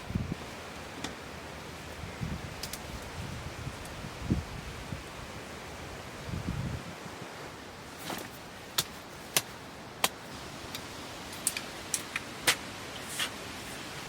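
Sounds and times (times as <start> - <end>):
faint rustle: 6.0 - 14.0.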